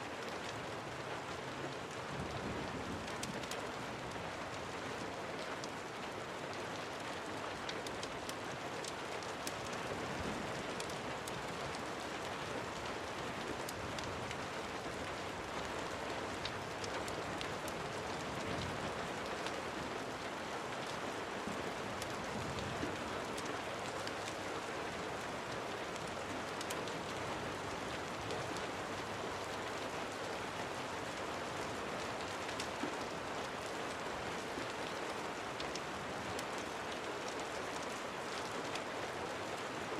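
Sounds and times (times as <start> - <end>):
sharp rain ticks: 0.0 - 39.9
steady rain falling: 0.0 - 39.9.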